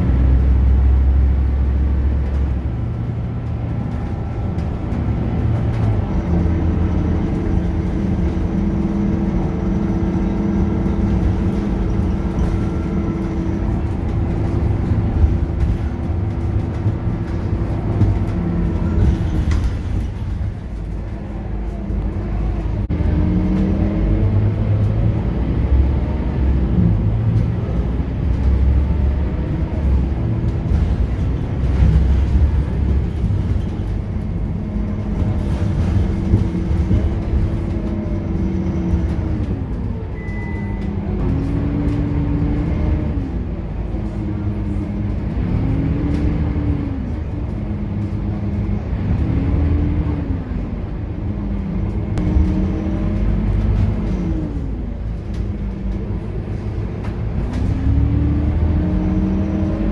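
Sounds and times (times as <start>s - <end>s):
bus diesel engine rumble: 0.0s - 59.9s.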